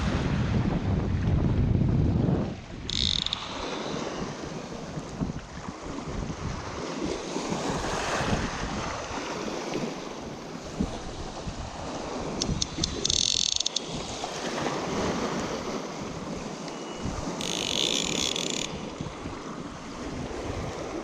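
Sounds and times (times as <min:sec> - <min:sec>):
choppy water lapping: 0:00.0 - 0:21.0
wind buffeting microphone: 0:00.0 - 0:21.0.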